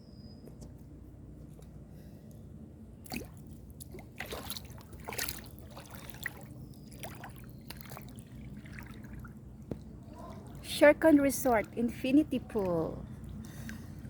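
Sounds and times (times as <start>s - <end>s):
low steady hum: 0.0s - 14.0s
pool water splashing: 3.0s - 13.0s.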